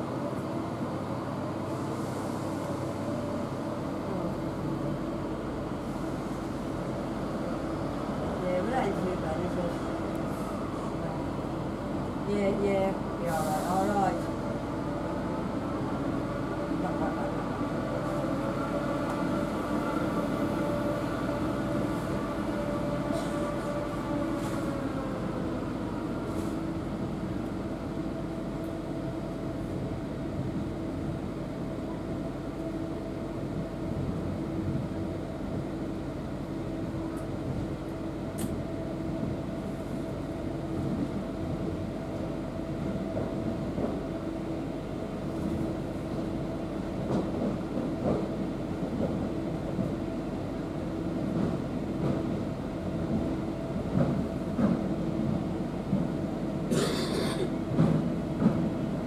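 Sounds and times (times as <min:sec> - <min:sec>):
train carriage rumble: 0:00.0 - 0:59.0.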